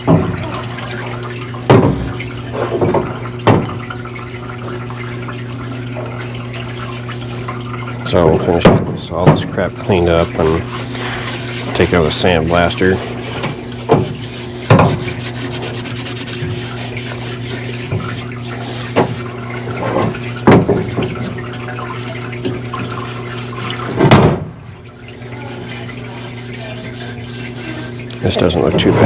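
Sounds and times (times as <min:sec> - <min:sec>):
scrubbing engine parts by hand: 0:00.0 - 0:29.0
steady low hum: 0:05.9 - 0:29.0.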